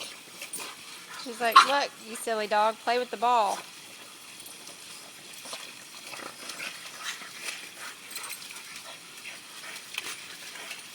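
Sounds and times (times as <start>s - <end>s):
dogs playing: 0.0s - 2.8s, 3.4s - 10.9s.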